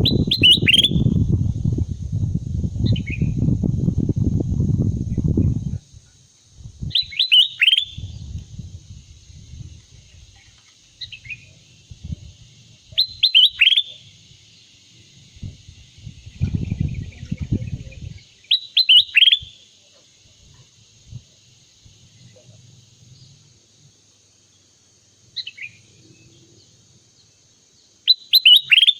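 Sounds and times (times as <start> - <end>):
bird whistled calls: 0.0 - 1.2, 6.9 - 8.2, 12.9 - 14.0, 16.4 - 19.6, 28.0 - 28.9
steady high hiss: 0.0 - 28.9.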